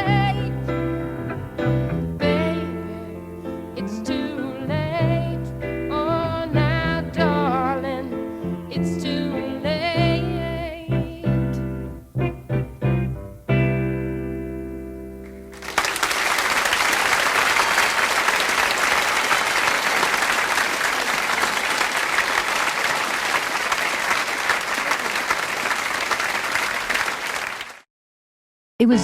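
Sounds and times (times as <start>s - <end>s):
audience applauding: 15.5s - 27.8s.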